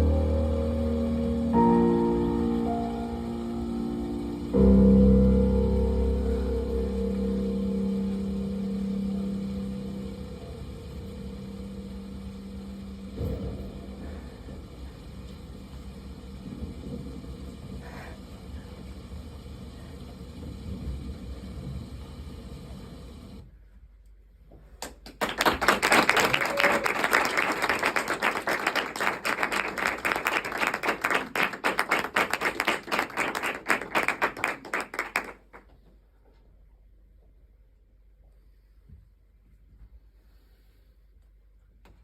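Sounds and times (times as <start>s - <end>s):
low rumble: 0.0s - 22.7s
audience applauding: 24.8s - 35.7s.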